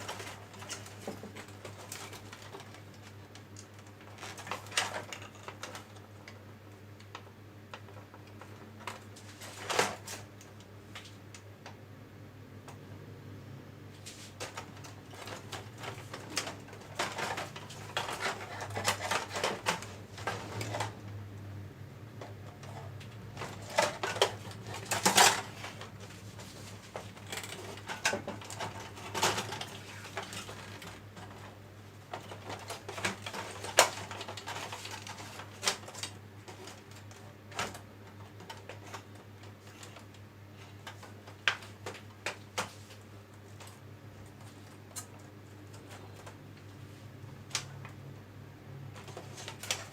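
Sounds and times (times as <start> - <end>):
parts and tools clattering: 0.0 - 6.0, 14.3 - 21.0, 22.2 - 40.1.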